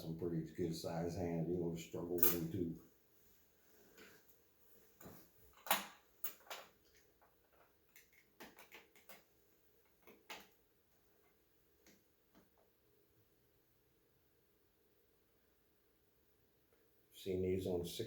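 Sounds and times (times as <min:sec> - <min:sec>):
small parts clicking and tapping: 0:05.5 - 0:10.6.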